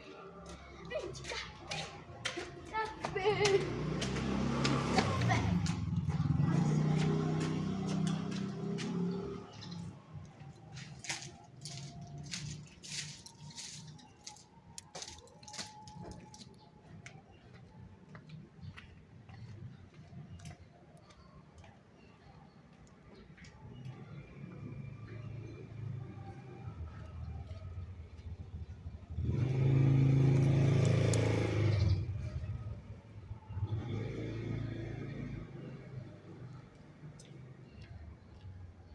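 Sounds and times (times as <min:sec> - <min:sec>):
vehicle engine running: 0:00.5 - 0:10.2
quieter engine sound: 0:23.5 - 0:38.8.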